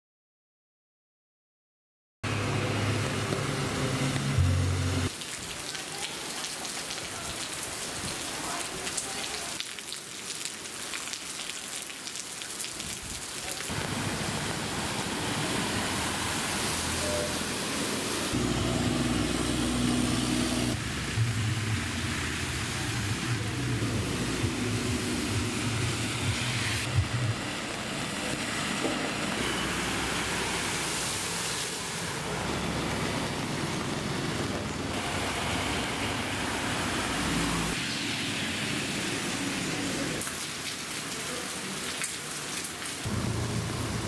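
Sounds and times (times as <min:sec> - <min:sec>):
vehicle engine running: 0:02.3 - 0:05.1, 0:18.4 - 0:30.5, 0:43.1 - 0:44.0
heavy rain on pavement and water: 0:02.7 - 0:44.0.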